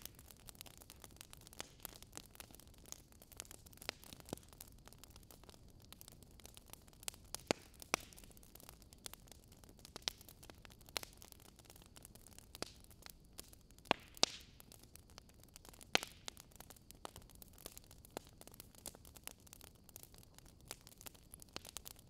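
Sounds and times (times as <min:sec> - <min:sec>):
oil popping and crackling: 0:00.0 - 0:02.6.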